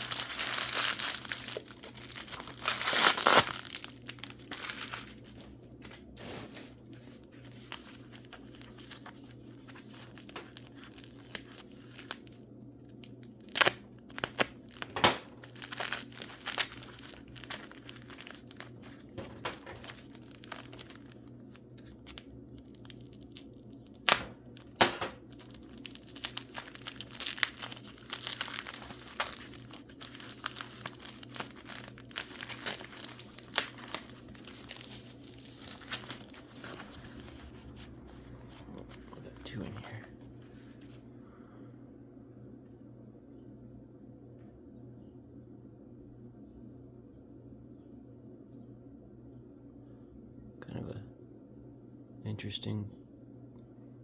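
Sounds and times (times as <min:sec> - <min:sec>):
packing material crinkling: 0:00.0 - 0:41.0.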